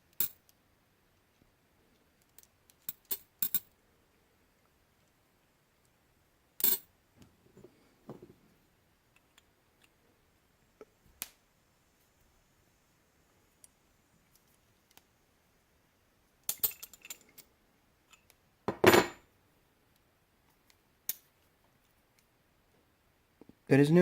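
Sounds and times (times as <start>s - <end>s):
soft handling noises: 6.6s - 10.1s.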